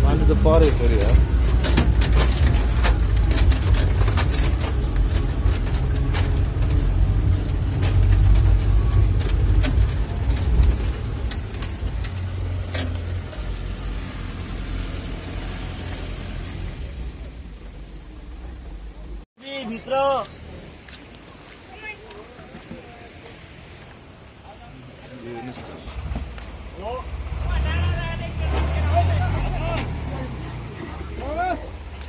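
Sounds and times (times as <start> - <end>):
vehicle engine rumbling: 0.0 - 32.0
sharp knocks and rattles: 0.2 - 13.6.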